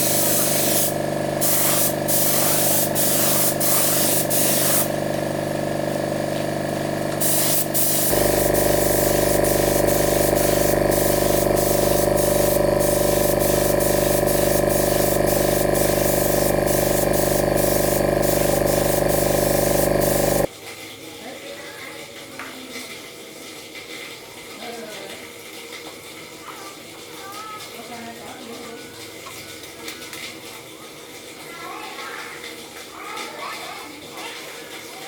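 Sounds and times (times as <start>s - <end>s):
spray hissing: 0.0s - 5.3s, 6.0s - 20.5s
sprayer motor humming: 0.0s - 20.5s.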